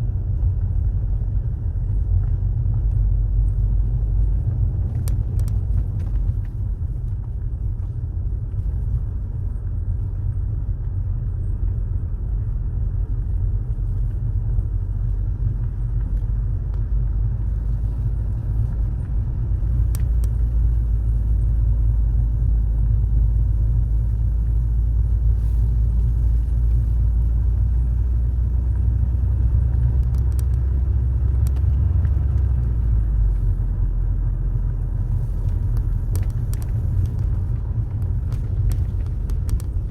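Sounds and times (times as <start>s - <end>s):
car road and engine rumble: 0.0s - 39.9s
faint clicks: 29.7s - 33.6s, 35.1s - 39.9s.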